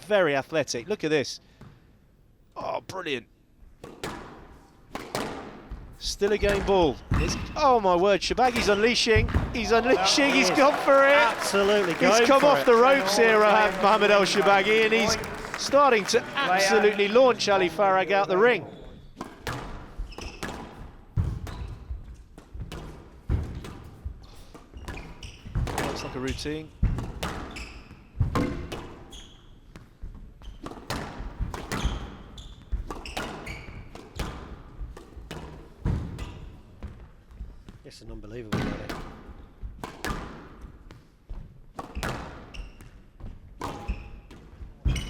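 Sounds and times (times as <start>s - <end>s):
squash ball struck by rackets: 3.8s - 5.7s, 39.8s - 40.5s.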